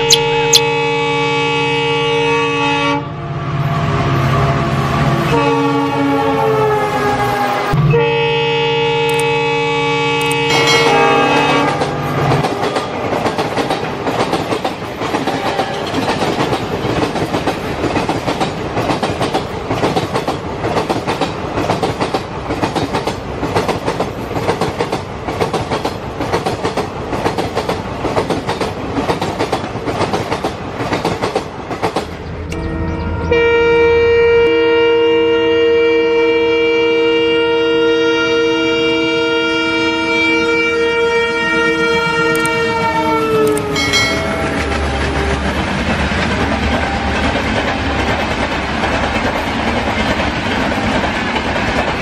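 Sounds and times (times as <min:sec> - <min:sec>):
two-tone train horn: 0:00.0 - 0:13.2, 0:15.3 - 0:16.2, 0:32.5 - 0:45.5, 0:46.6 - 0:48.2
clickety-clack of train wheels: 0:10.2 - 0:32.2, 0:42.3 - 0:52.0.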